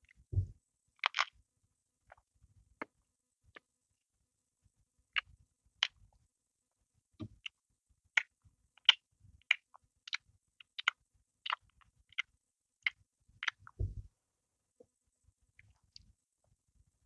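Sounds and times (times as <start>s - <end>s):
soft low thump: 0.3s - 0.6s, 13.8s - 14.1s
chewing crusty bread: 8.2s - 13.8s.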